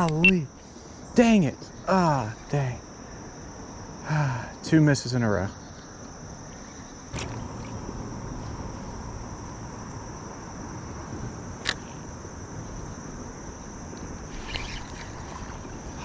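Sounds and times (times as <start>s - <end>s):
insects trilling: 0.0s - 16.0s
sharp click: 11.6s - 11.8s
creek water flowing: 14.0s - 16.0s.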